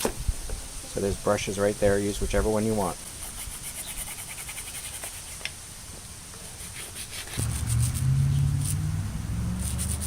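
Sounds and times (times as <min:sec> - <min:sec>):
brush scrubbing metal: 0:02.9 - 0:05.5, 0:06.4 - 0:08.8.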